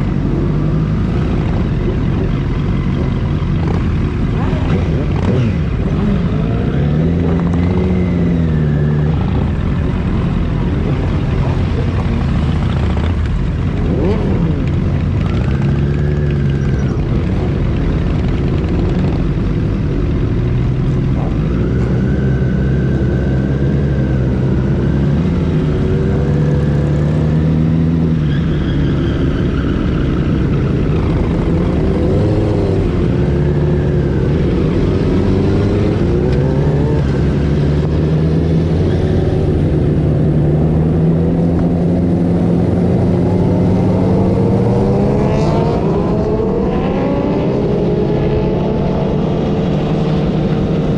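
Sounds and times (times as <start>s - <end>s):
motorcycle engines running: 0.0s - 50.9s.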